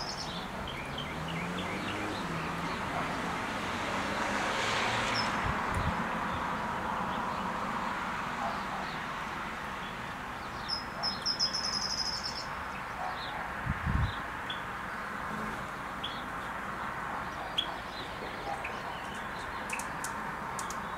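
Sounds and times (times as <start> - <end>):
bird chirping rapidly: 0.0 - 2.8, 10.5 - 12.5
outdoor background hiss: 14.2 - 17.2.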